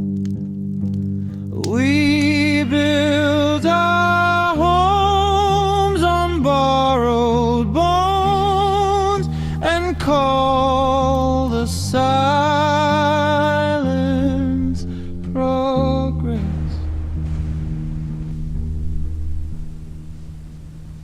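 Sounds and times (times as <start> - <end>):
person singing with vibrato: 1.6 - 6.2, 7.8 - 14.6
sustained low accompaniment: 1.6 - 6.2, 7.9 - 21.0.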